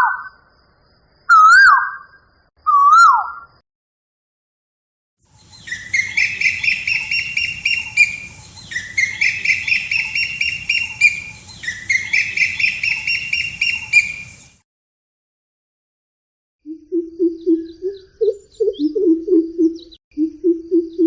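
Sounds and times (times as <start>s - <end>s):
bird chattering call: 5.4s - 14.6s.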